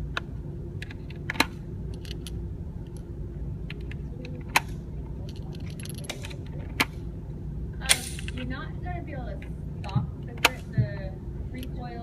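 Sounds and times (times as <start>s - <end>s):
steady low hum: 0.0s - 12.0s
small metallic clicks and clinks: 3.7s - 6.9s.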